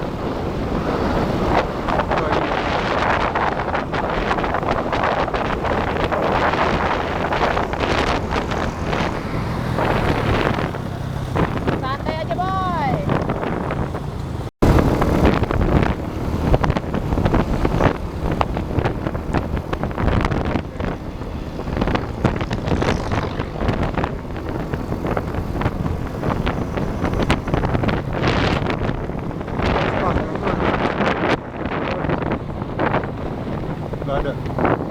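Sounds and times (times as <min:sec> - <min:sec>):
train rumbling on track: 0:00.0 - 0:34.9
wind buffeting microphone: 0:00.0 - 0:34.9.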